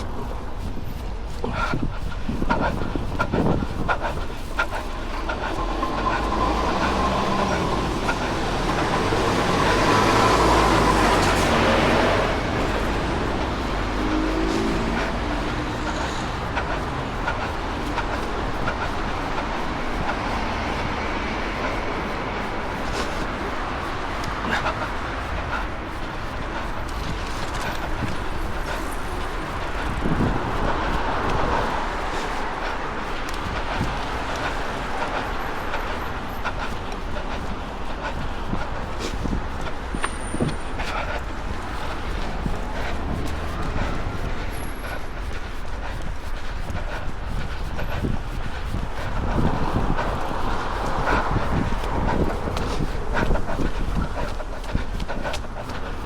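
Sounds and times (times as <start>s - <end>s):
street traffic: 0.0s - 56.0s
wind buffeting microphone: 0.0s - 56.0s
large vehicle passing: 5.2s - 45.2s.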